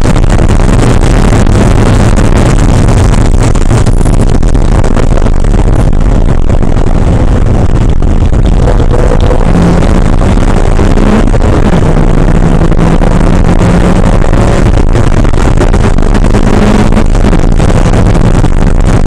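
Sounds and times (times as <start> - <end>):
car engine running hard: 0.0 - 19.0
wind and road noise: 0.0 - 19.0.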